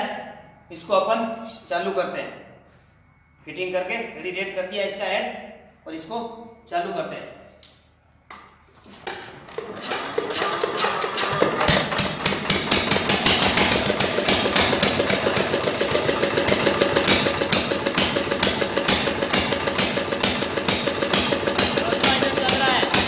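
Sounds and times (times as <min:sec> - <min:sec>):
diesel engine knocking: 0:09.9 - 0:23.0.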